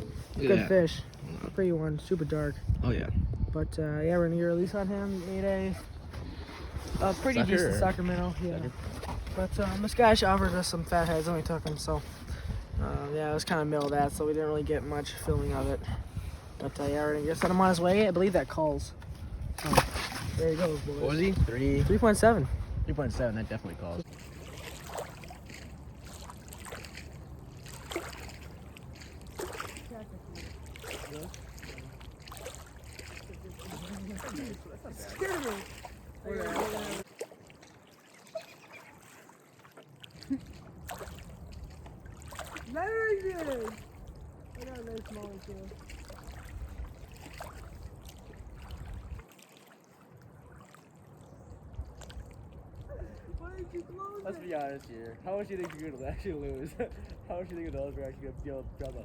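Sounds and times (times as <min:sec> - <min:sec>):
river water splashing: 0:19.5 - 0:22.2, 0:23.9 - 0:59.0.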